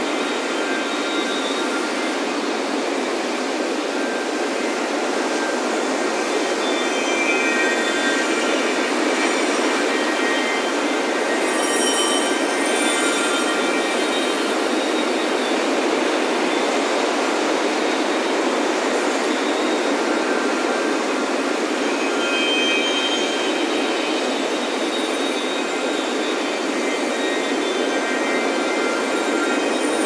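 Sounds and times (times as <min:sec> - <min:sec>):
wind chimes ringing: 0:06.8 - 0:15.6.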